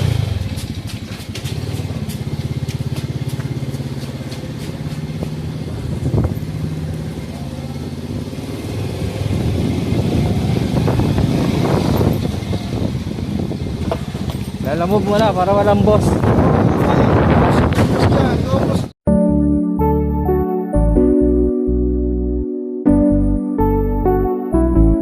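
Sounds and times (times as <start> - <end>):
motorcycle engine idling: 0.0 - 8.5.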